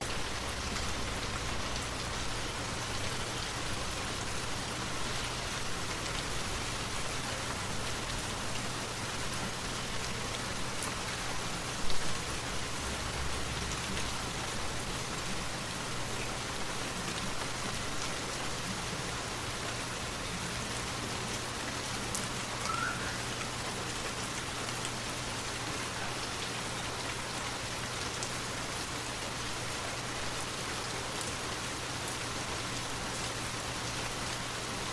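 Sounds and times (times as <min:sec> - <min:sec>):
faint short chirp: 0:22.7 - 0:23.2.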